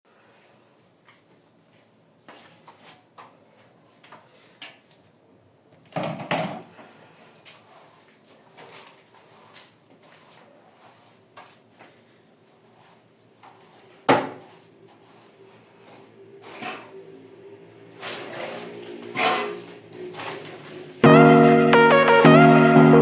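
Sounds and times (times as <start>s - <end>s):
kitchen items knocking and clicking: 5.9s - 6.7s.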